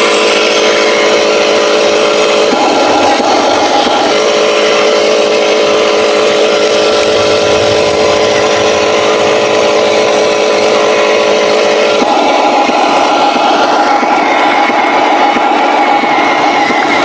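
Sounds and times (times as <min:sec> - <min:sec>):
toy truck mechanical drone: 0:00.0 - 0:17.0
higher tone: 0:06.7 - 0:11.8.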